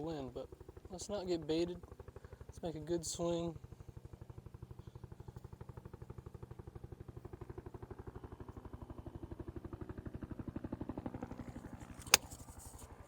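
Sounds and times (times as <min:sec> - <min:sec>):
helicopter rotor chopping: 0:00.0 - 0:13.0
golf club striking ball: 0:12.0 - 0:12.4.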